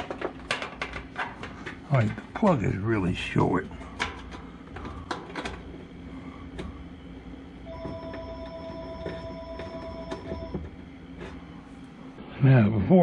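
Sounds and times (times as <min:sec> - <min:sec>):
parts clicking and rattling: 0:00.0 - 0:02.6, 0:03.6 - 0:05.8.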